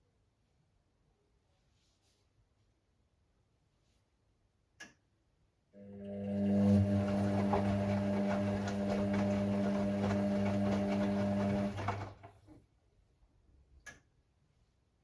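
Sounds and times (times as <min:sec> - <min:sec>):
washing machine running: 0:05.8 - 0:12.5.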